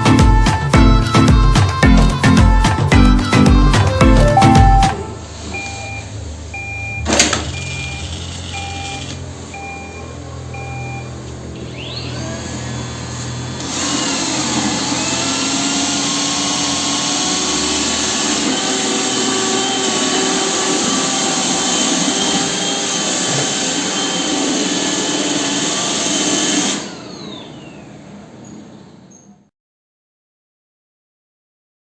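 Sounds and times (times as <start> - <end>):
robot vacuum whirring: 11.6 - 28.1.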